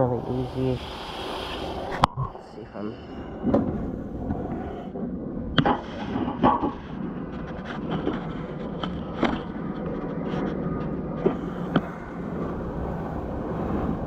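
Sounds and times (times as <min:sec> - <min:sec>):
hose spraying water: 0:00.0 - 0:02.1
sharp knocks and clatters: 0:05.6 - 0:10.1.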